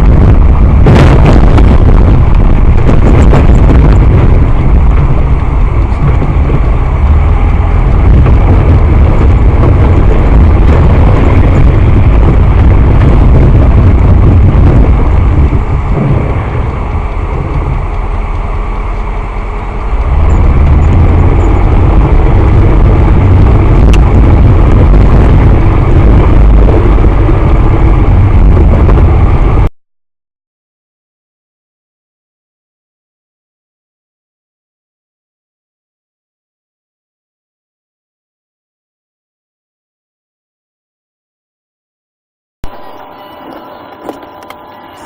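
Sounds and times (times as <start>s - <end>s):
road noise: 0.0s - 29.7s, 42.6s - 45.0s
vehicle engine: 0.0s - 29.7s, 42.6s - 45.0s.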